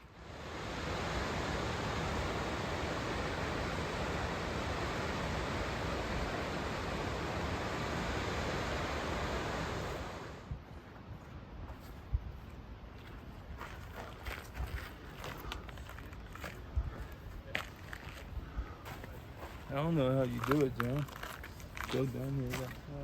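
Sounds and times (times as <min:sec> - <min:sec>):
rushing water: 0:00.0 - 0:10.5.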